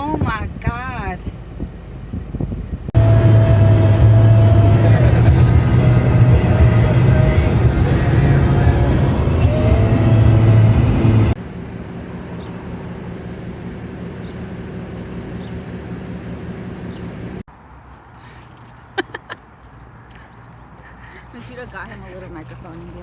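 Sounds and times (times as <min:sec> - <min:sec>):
vehicle hum: 0:00.0 - 0:23.0
beat music: 0:03.0 - 0:09.7.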